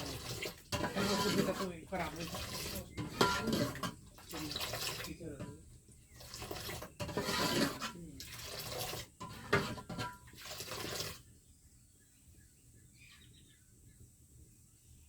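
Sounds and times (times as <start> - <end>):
water pouring and splashing: 0.0 - 11.3
faint bird chirps: 11.4 - 15.0.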